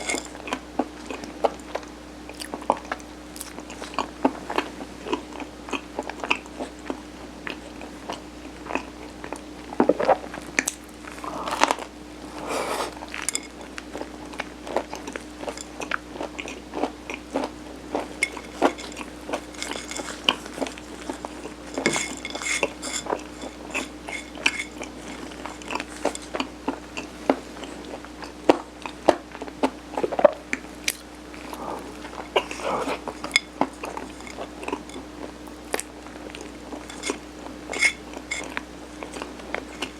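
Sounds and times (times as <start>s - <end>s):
chewing and biting rice cake: 0.0s - 9.4s, 24.7s - 37.2s
faint steady hum: 0.0s - 39.9s.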